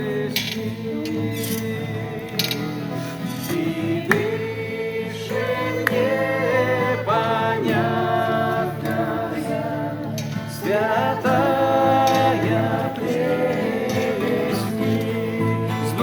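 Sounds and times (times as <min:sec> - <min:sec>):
group singing a slow hymn: 0:00.0 - 0:16.0
steady musical accompaniment: 0:00.0 - 0:16.0.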